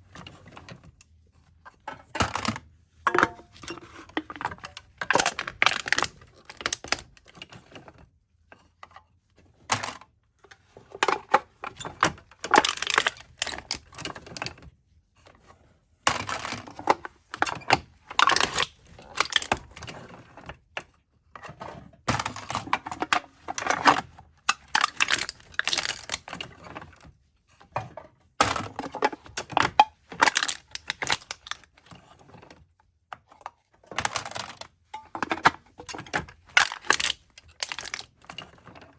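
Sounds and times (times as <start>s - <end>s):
soda cans being crushed: 4.2s - 7.0s, 12.5s - 13.9s, 18.2s - 19.7s, 24.5s - 26.4s, 28.4s - 31.6s, 34.0s - 34.6s, 35.2s - 38.2s.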